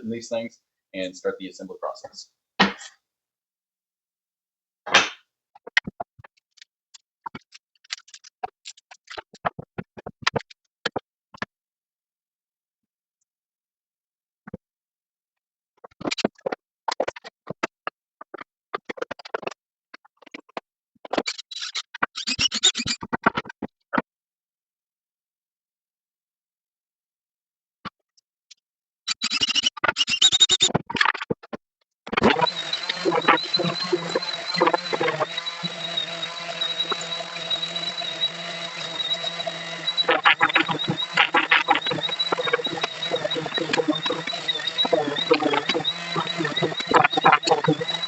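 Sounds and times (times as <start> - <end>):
scratchy scraping: 32.2 - 48.0.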